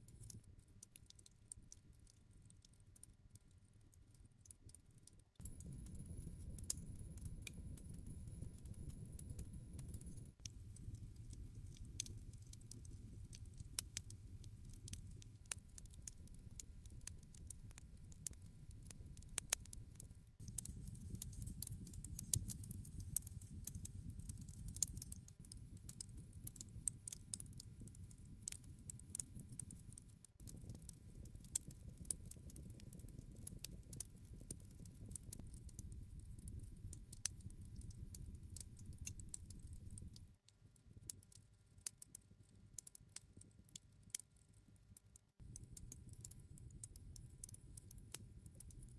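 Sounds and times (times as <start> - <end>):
campfire crackling and popping: 4.6 - 40.3.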